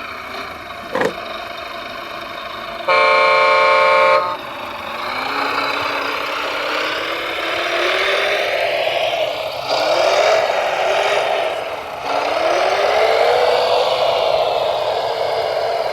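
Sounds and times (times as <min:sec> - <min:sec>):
motor whining: 0:02.9 - 0:04.4
multi-tone horn honk: 0:02.9 - 0:04.4.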